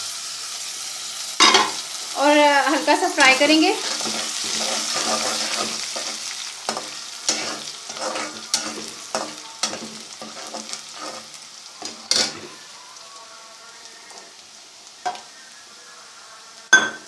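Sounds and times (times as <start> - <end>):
onions sizzling in hot oil: 0.0 - 17.0
spoon scraping and clicking on pan: 3.8 - 12.5.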